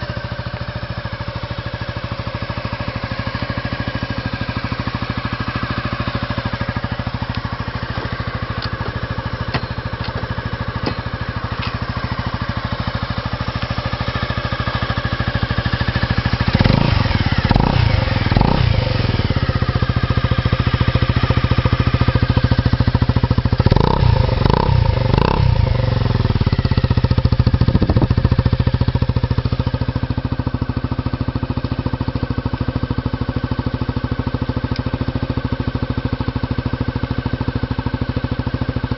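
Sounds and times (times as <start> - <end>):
scooter engine idling and revving: 0.0 - 38.9.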